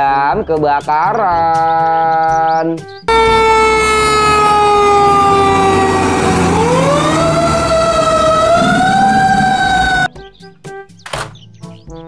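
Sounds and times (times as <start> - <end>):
fire truck siren wailing: 3.1 - 10.1.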